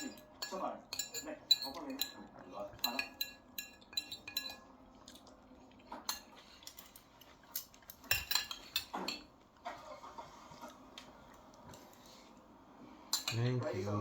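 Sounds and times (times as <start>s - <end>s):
cutlery clinking against plates: 0.0s - 10.8s, 13.0s - 14.0s.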